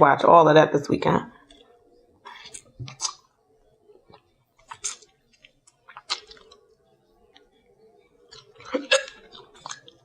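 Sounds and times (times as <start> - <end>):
chewing and wet mouth sounds: 2.3 - 3.3, 4.1 - 7.5, 8.3 - 10.0.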